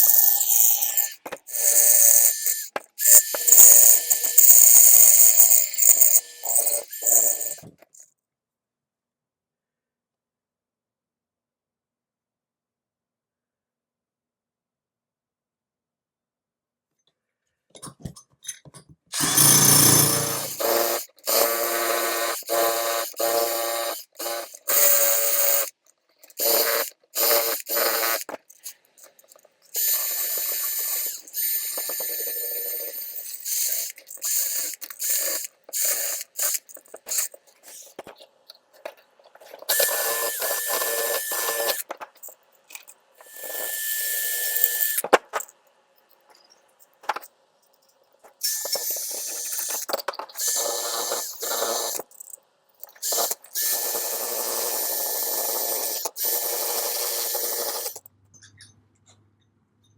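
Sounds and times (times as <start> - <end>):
handheld power tool bursts: 0.0 - 7.7, 19.1 - 25.7, 29.7 - 38.0, 39.6 - 42.3, 43.2 - 45.4, 48.4 - 52.3, 52.9 - 58.0.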